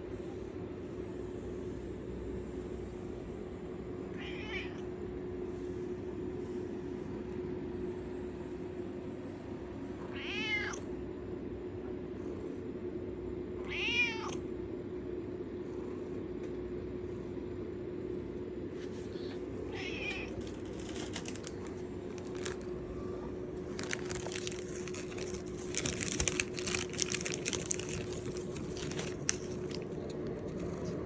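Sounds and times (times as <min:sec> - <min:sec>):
steady low hum: 0:00.0 - 0:31.0
cat meowing: 0:04.1 - 0:04.8, 0:10.0 - 0:10.8, 0:13.6 - 0:14.4, 0:19.7 - 0:20.4.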